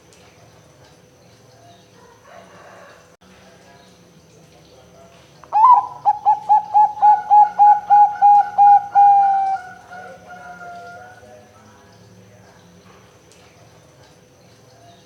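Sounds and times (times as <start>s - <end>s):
dove cooing: 5.5s - 11.2s.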